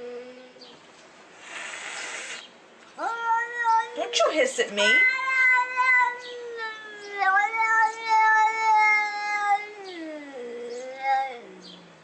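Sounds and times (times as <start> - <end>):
cat meowing: 3.0 - 11.8.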